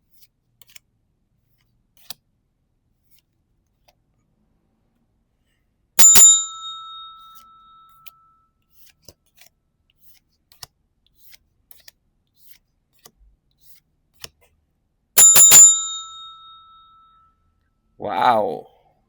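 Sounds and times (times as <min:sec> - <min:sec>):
small bell ringing: 0:06.0 - 0:08.4, 0:15.2 - 0:17.3.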